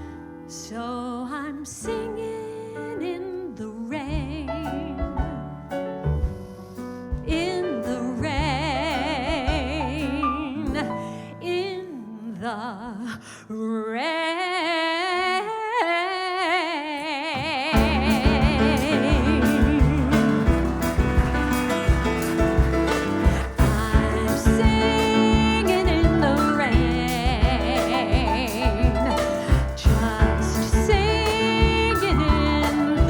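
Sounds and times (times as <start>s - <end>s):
woman singing with vibrato: 0.5s - 5.1s, 7.3s - 21.9s, 23.1s - 33.0s
live band accompaniment: 17.7s - 33.0s.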